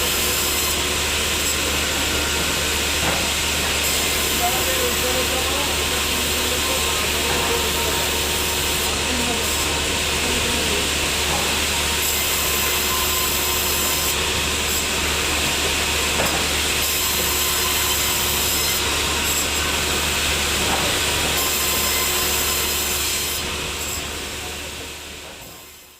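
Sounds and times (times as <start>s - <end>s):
machine humming: 0.0s - 20.6s
saw cutting through log: 0.0s - 25.9s.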